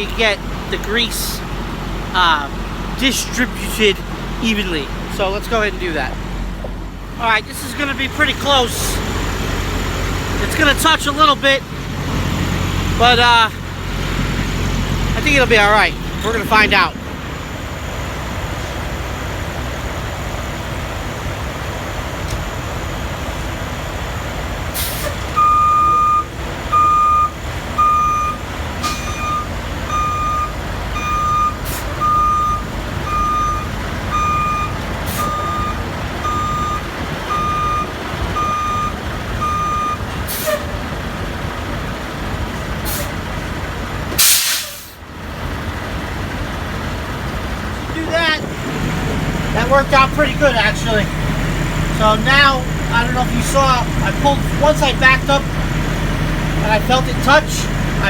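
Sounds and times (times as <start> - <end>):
truck engine running: 0.0 - 58.0
air brake hisses: 24.8 - 25.2, 44.2 - 45.0
back-up alarm beeping: 25.4 - 40.0.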